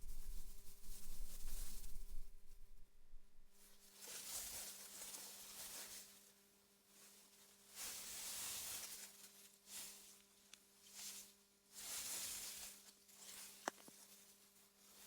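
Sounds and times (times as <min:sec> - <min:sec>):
wind gusting through grass: 0:00.0 - 0:03.6.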